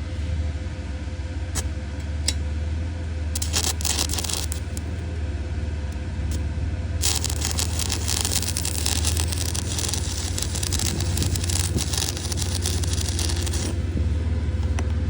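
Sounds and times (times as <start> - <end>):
steady low hum: 0.0 - 15.0
welding arc crackling: 3.4 - 5.0, 7.0 - 14.8.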